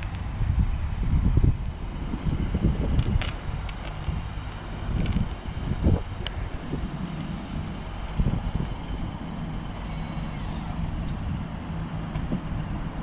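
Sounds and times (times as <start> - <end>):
car engine humming: 0.0 - 13.0
wind buffeting microphone: 0.0 - 13.0.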